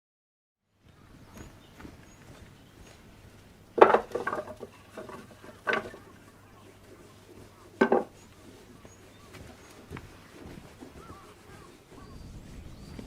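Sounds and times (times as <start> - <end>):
firewood pieces knocking together: 3.8 - 6.0, 7.8 - 8.1.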